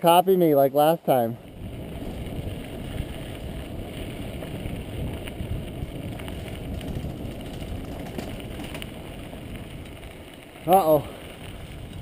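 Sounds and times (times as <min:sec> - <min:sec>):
bike tyres rumbling on dirt: 0:00.0 - 0:12.0
small clicks and rattles: 0:06.1 - 0:10.4.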